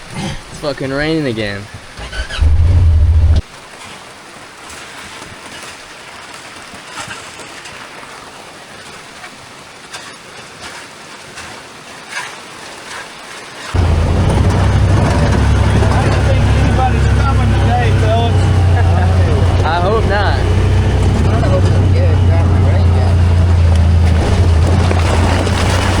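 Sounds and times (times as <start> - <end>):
steady rain: 0.0 - 26.0
loud low rumble: 2.4 - 3.4, 13.8 - 26.0.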